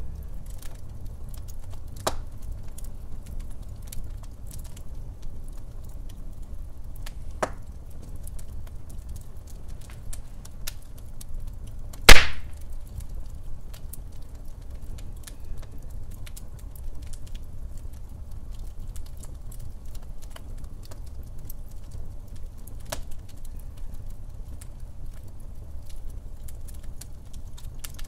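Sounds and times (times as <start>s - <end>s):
log fire crackling: 0.0s - 28.0s
loud sharp pop: 12.1s - 12.6s.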